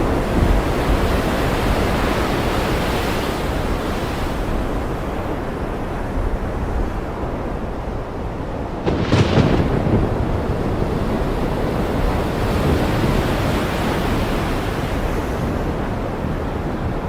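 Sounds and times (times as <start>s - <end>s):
ocean surf rushing: 0.0s - 17.0s
low thunder rumble: 8.6s - 13.7s.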